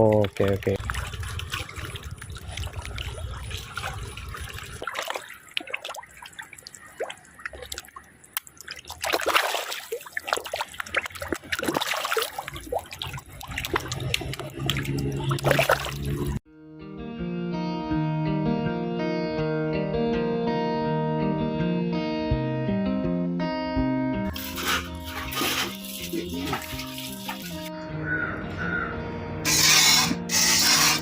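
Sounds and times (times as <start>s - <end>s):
water trickling and splashing: 0.0s - 16.4s, 24.3s - 27.7s.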